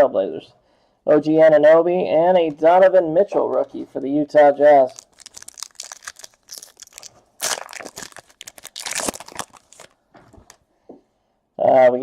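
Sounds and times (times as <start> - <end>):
foil wrapper crinkling and tearing: 4.8 - 10.6.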